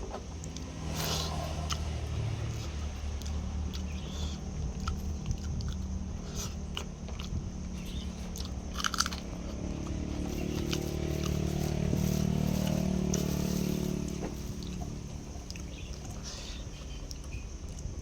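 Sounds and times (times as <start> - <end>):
person chewing crunchy food: 0.0 - 18.0
steady low hum: 0.0 - 18.0.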